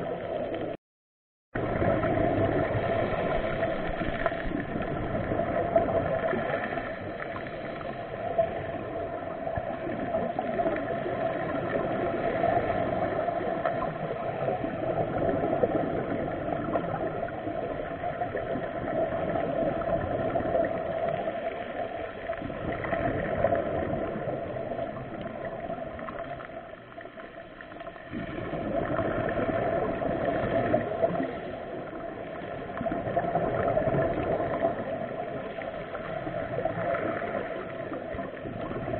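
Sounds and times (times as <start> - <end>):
muffled water rushing and gurgling: 0.0 - 0.8, 1.6 - 38.9.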